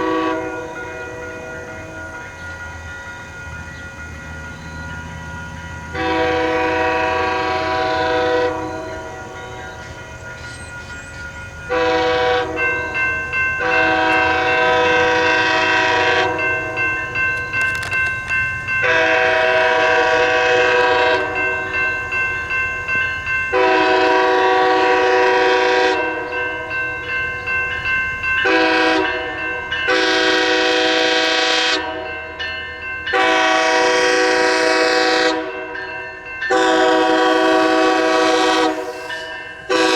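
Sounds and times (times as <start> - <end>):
locomotive air horn blasts: 0.0 - 2.0, 5.9 - 9.4, 11.7 - 16.9, 18.8 - 21.5, 23.5 - 26.4, 28.4 - 32.2, 33.1 - 35.8, 36.5 - 39.9
low locomotive rumble: 0.0 - 39.9.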